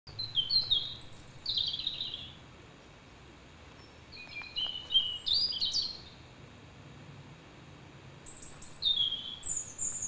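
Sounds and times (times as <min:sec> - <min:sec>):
birds chirping: 0:00.1 - 0:06.6, 0:08.1 - 0:10.0
short whistled bird notes: 0:08.3 - 0:10.0.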